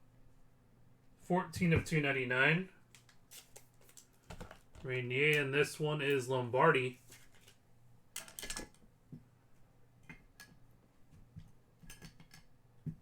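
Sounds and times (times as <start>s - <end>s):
cards clicking and tapping: 3.0s - 5.4s.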